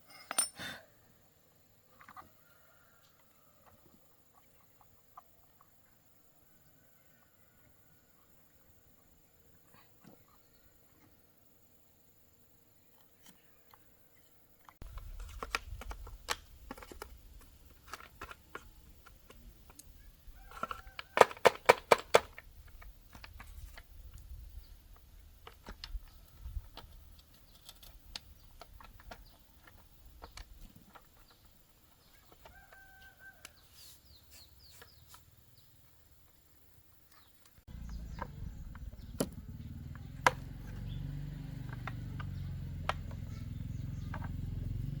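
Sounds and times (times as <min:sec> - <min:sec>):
hand tools clicking on metal parts: 0:00.0 - 0:00.8.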